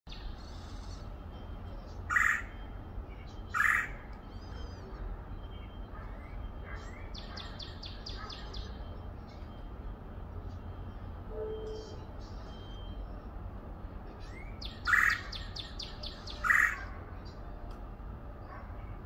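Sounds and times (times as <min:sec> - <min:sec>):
harsh bird calls: 0:00.1 - 0:01.3, 0:01.9 - 0:09.6, 0:14.2 - 0:17.4.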